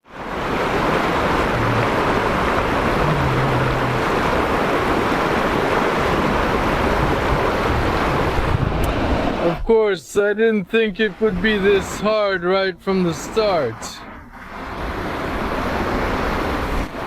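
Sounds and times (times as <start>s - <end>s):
river rushing over rocks: 0.0s - 9.6s, 14.4s - 17.0s.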